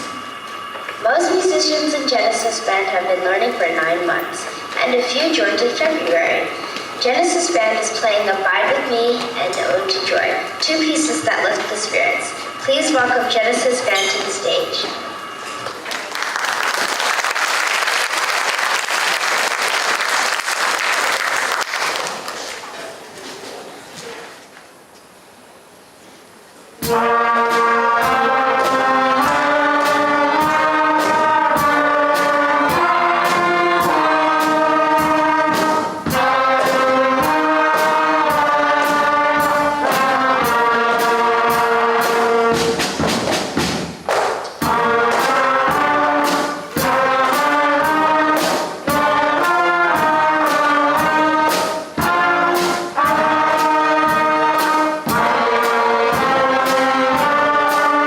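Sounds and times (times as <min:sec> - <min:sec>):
school concert band playing: 0:00.0 - 0:58.0
percussion beat: 0:26.8 - 0:58.0.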